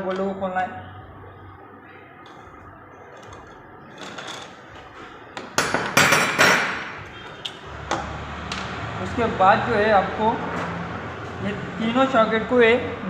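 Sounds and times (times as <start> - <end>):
metal tools knocking on metal: 5.4 - 7.0.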